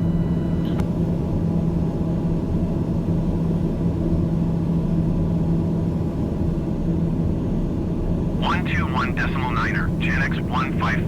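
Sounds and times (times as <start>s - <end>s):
aircraft engine drone: 8.4s - 11.0s.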